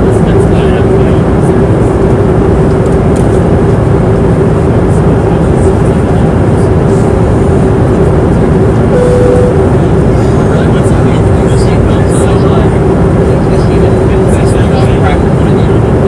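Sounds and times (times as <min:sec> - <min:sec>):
airliner cabin engine rush: 0:00.0 - 0:16.0
constant low hum: 0:00.0 - 0:16.0
short tone: 0:08.9 - 0:09.8.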